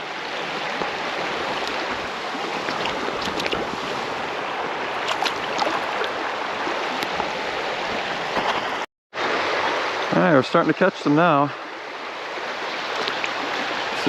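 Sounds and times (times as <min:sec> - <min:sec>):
creek water flowing over rocks: 0:00.0 - 0:14.0.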